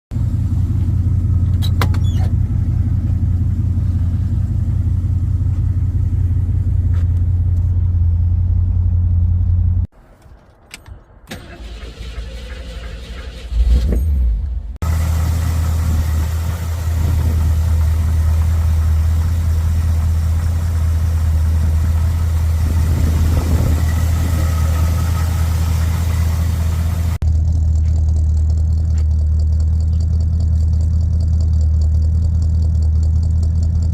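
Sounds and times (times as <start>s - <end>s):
car engine running: 0.1s - 9.9s, 11.4s - 33.9s
loud low rumble: 14.3s - 33.1s.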